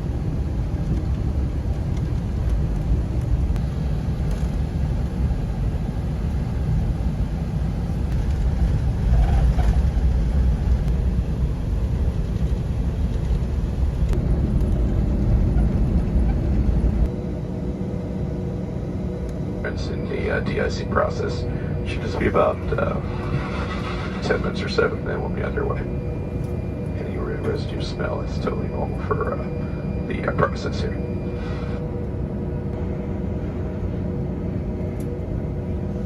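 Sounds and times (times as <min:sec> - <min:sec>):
aircraft cabin rumble: 0:00.0 - 0:36.0.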